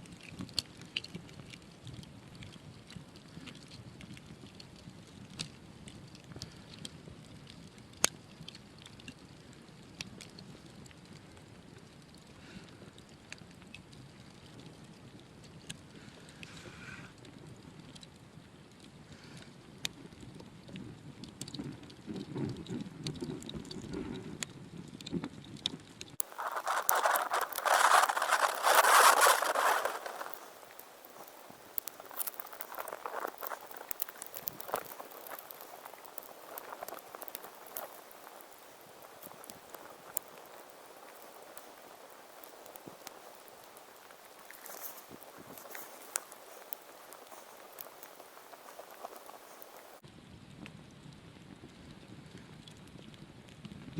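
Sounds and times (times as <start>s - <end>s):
campfire crackling and popping: 0.0s - 16.5s, 26.2s - 50.1s
hissing rush: 26.2s - 50.0s.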